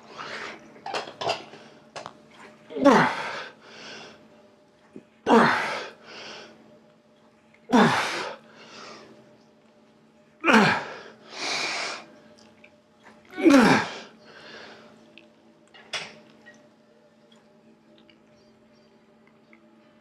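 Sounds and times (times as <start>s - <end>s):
person grunting: 2.7s - 3.4s, 5.3s - 5.9s, 7.7s - 8.3s, 10.4s - 11.0s, 13.4s - 14.0s
person breathing hard: 10.6s - 12.1s.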